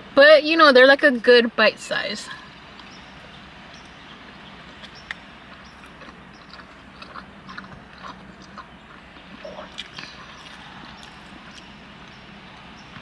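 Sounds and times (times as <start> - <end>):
person chewing food: 4.7 - 12.7
wet mouth clicks and smacks: 9.7 - 11.7.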